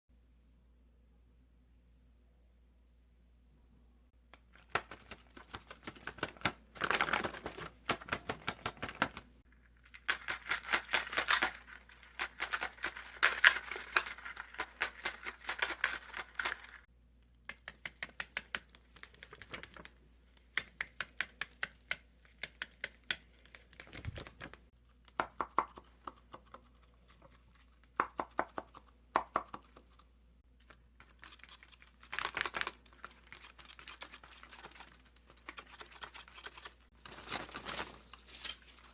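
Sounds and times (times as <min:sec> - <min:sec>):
paper crinkling: 0:04.5 - 0:16.9, 0:18.8 - 0:20.0, 0:30.6 - 0:38.9
paper clicks: 0:17.5 - 0:24.6.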